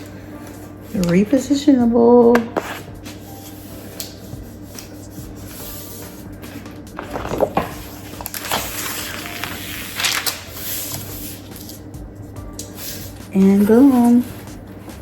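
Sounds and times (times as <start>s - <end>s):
paper scuffs: 2.5s - 11.9s
paper rustling and rubbing: 2.5s - 15.0s.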